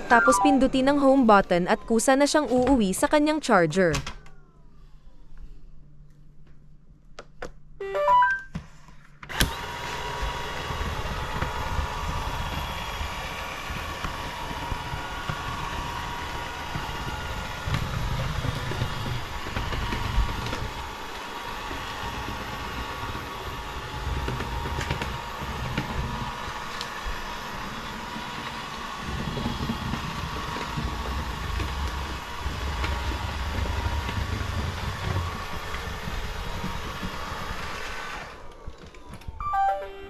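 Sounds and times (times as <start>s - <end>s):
short electronic chime: 0.0s - 0.7s, 7.8s - 8.5s, 39.4s - 40.0s
robot vacuum motor whine: 9.3s - 39.7s.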